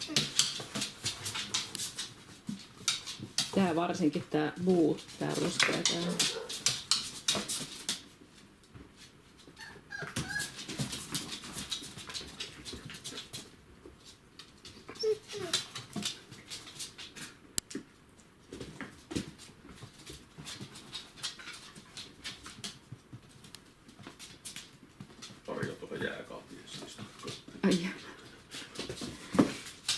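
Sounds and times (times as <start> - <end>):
puppies whimpering: 9.6 - 10.6, 14.9 - 15.6.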